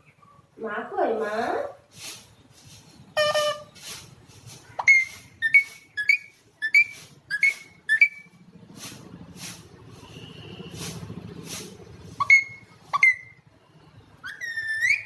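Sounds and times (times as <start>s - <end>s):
parakeet whistling: 4.8s - 8.4s, 12.2s - 13.4s, 14.2s - 15.0s.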